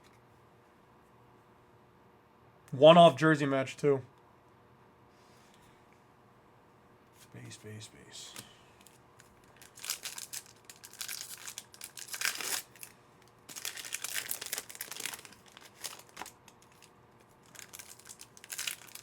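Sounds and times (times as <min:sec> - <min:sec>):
foil wrapper crinkling and tearing: 0:08.8 - 0:19.0.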